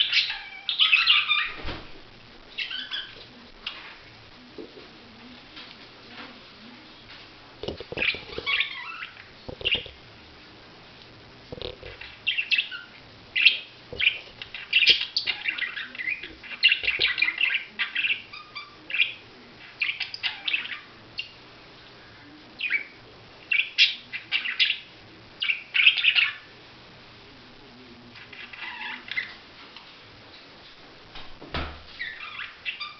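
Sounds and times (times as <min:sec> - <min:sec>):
budgerigars chirping: 0:00.0 - 0:01.6, 0:02.6 - 0:03.9, 0:07.9 - 0:10.0, 0:11.6 - 0:21.4, 0:22.6 - 0:26.4, 0:32.0 - 0:32.9.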